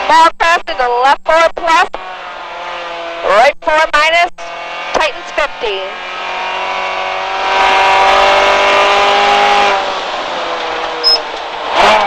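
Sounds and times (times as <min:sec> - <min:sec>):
road noise: 0:01.3 - 0:12.0
car engine accelerating: 0:01.9 - 0:03.5, 0:04.4 - 0:12.0.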